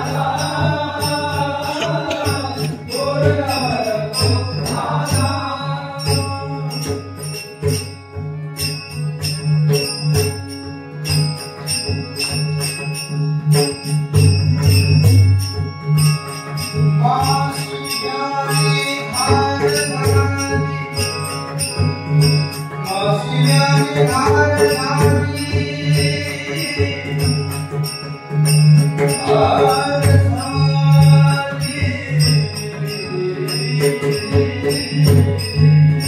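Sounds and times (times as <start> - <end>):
person singing: 0.0 - 5.5
hand cymbals jingling: 0.0 - 8.0, 8.6 - 36.0
harmonium drone: 0.0 - 36.0.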